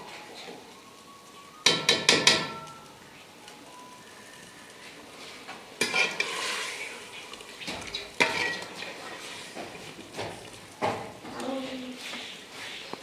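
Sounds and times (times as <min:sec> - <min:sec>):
food sizzling: 0:00.0 - 0:13.0
spoon clanking on pot: 0:01.6 - 0:02.9, 0:05.8 - 0:06.7, 0:07.7 - 0:11.1
spoon stirring and scraping pot: 0:04.8 - 0:11.2.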